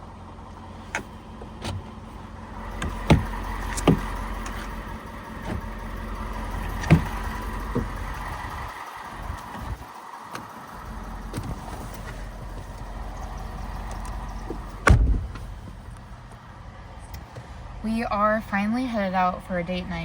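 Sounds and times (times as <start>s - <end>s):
truck low hum: 0.0s - 20.0s
door shutting thud: 14.8s - 15.5s.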